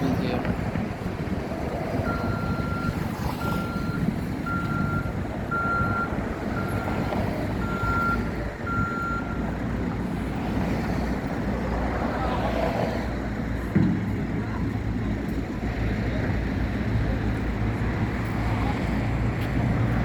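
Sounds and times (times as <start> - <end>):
low rumble of traffic: 0.0 - 20.0
reversing alarm beeping: 2.0 - 9.5.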